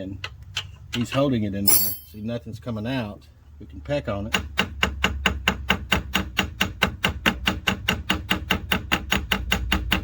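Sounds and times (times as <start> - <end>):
rapid metal tapping with ring: 1.7 - 2.2.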